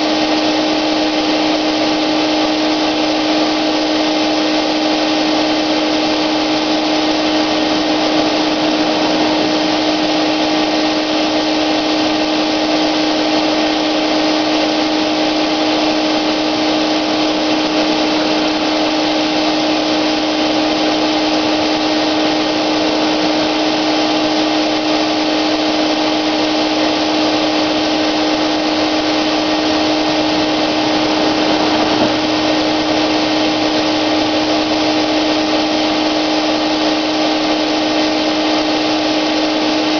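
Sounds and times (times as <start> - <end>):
paint sprayer motor whine: 0.0 - 39.9
rushing hiss of air: 5.0 - 36.6.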